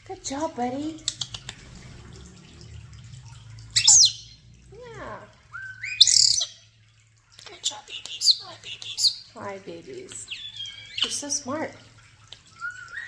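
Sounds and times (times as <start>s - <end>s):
low steady hum: 0.0s - 13.0s
starlings whistling: 3.8s - 4.4s, 5.5s - 6.6s, 12.5s - 13.0s.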